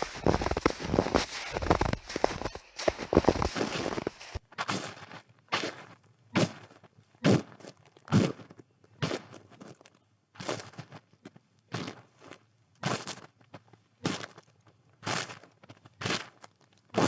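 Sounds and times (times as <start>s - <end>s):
footsteps crunching in snow: 0.0s - 4.4s.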